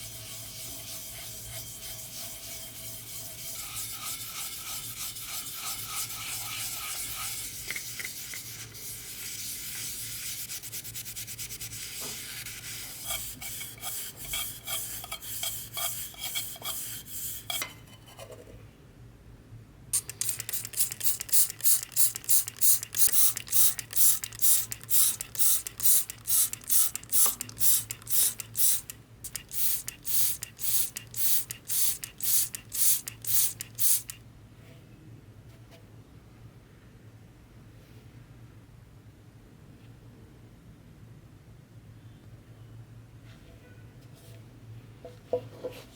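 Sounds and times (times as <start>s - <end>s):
scrubbing on brass surface: 0.0s - 17.6s.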